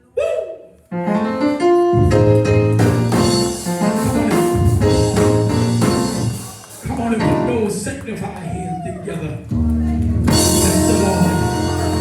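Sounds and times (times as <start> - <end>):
keyboard chords: 0.9 - 7.8, 9.6 - 12.0
bass: 2.0 - 7.8, 9.4 - 12.0
drums: 2.0 - 7.8, 9.5 - 12.0.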